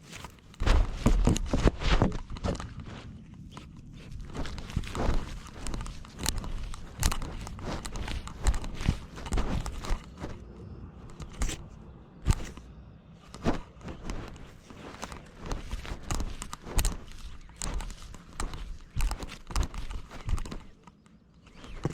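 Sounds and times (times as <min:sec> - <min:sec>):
camera jostling and rustling: 0:00.0 - 0:21.9
cat footsteps: 0:00.2 - 0:21.9.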